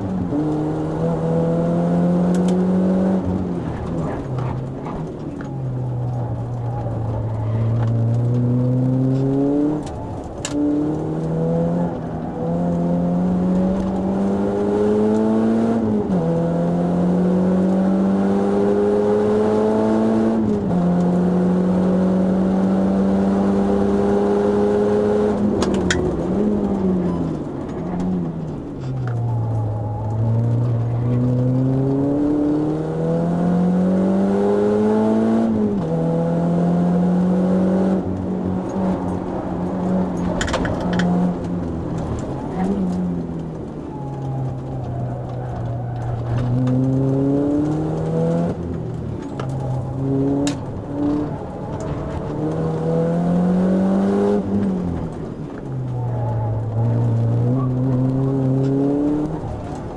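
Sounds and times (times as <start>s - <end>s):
car engine revving from inside cabin: 0.3s - 3.4s, 7.2s - 9.9s, 10.6s - 27.3s, 29.5s - 40.2s, 46.5s - 48.7s, 49.7s - 54.9s, 56.6s - 59.5s.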